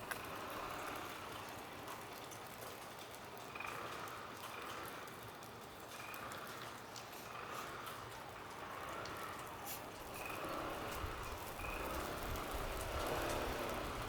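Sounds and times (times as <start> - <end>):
car engine and tyres: 8.6 - 14.0.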